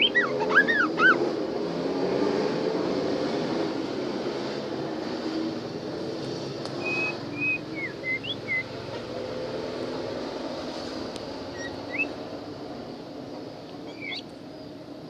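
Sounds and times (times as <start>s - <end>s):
bird whistling notes: 0.0s - 1.2s, 6.8s - 8.7s, 11.5s - 12.2s, 13.9s - 14.3s.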